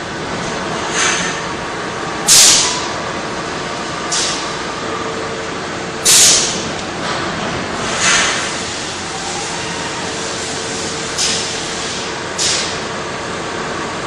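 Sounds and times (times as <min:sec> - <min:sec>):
sewer jetting machine running: 0:00.0 - 0:14.0
hissing surge of spray: 0:06.0 - 0:06.6.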